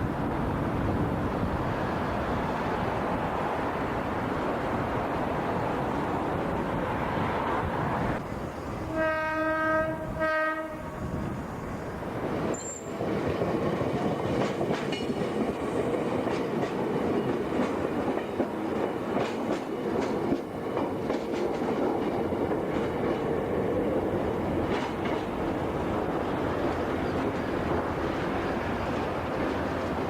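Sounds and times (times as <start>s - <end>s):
electric train rumbling past: 0.0s - 30.0s
wheels clicking over rail joints: 12.4s - 30.0s.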